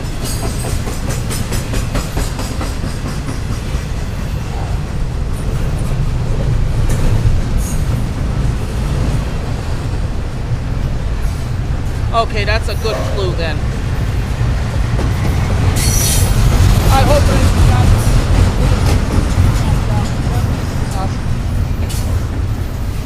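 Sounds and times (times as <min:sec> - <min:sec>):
wheels clicking over rail joints: 0:00.0 - 0:09.4, 0:14.9 - 0:23.0
freight train rumbling past: 0:00.0 - 0:23.0.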